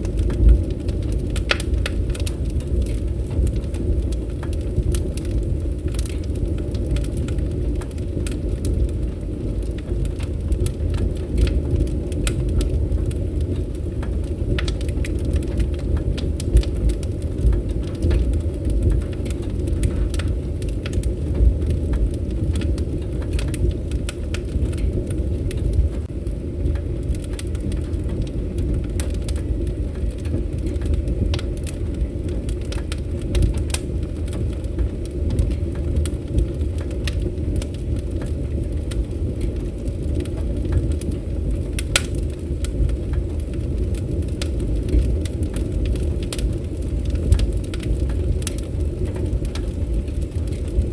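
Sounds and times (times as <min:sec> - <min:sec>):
campfire crackling and popping: 0:00.0 - 0:50.9.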